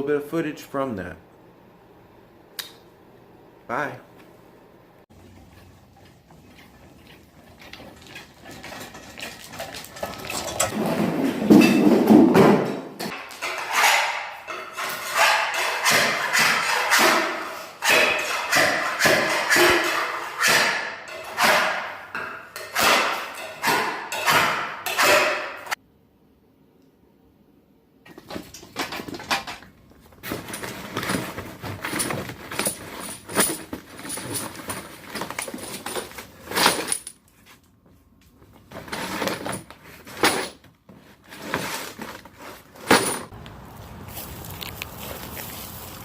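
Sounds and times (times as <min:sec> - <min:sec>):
crackling and scraping: 0:05.2 - 0:12.2, 0:28.1 - 0:46.0
footsteps crunching on ice: 0:43.3 - 0:46.0.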